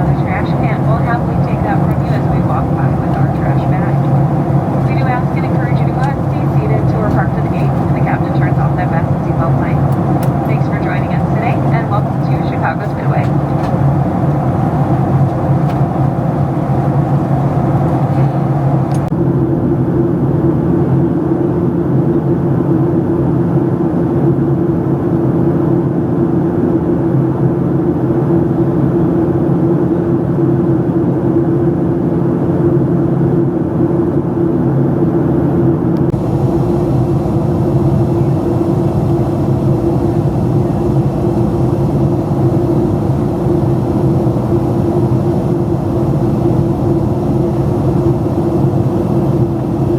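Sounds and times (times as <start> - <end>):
airflow: 0.0 - 19.1, 36.0 - 49.9
low hum: 0.0 - 19.1, 36.0 - 49.9
jet engines droning: 0.0 - 19.2, 35.4 - 49.9.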